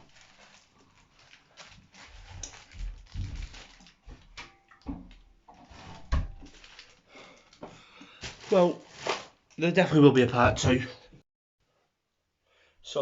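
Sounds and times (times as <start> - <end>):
rustling: 0.0 - 4.4, 5.6 - 7.1, 8.2 - 9.4.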